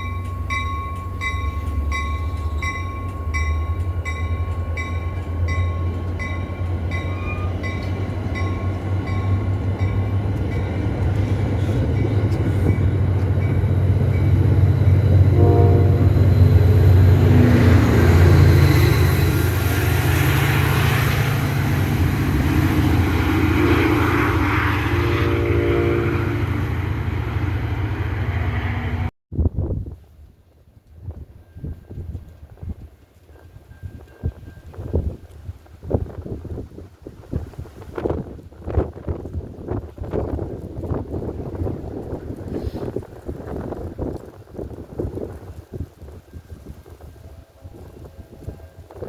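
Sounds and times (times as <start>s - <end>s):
crossing bell dinging: 0.0s - 19.4s
train engine rumble: 0.0s - 49.0s
wheels rushing on rail: 0.0s - 49.0s
train horn chord: 15.2s - 16.4s, 24.3s - 26.6s.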